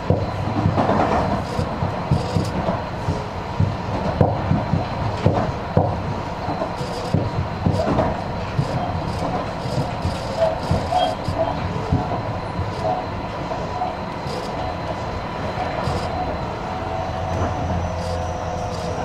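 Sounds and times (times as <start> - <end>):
train rumbling from inside: 0.0 - 19.0
wheel clicks and knocks on track: 0.1 - 2.8, 3.6 - 12.9.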